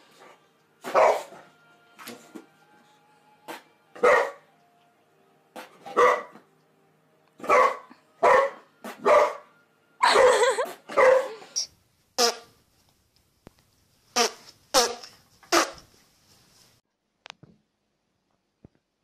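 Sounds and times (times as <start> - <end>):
dog barking: 0.9 - 1.4, 4.0 - 4.5, 5.9 - 6.4, 7.4 - 11.5.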